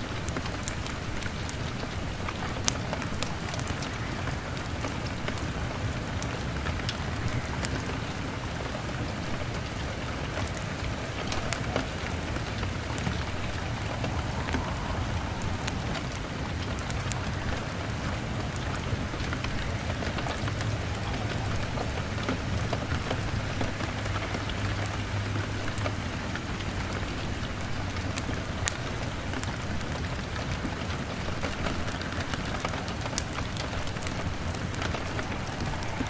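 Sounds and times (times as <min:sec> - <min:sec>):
heavy rain on a window: 0:00.0 - 0:36.0
low rumble: 0:10.9 - 0:19.1.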